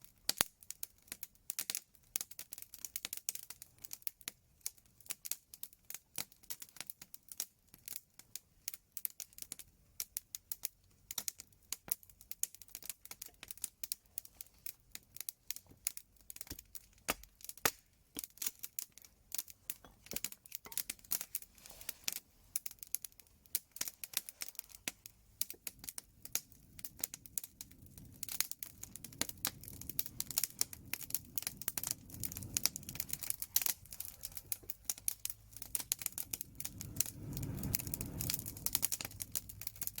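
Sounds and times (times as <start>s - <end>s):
wood fire crackling: 0.0s - 40.0s
low rumble: 27.9s - 40.0s.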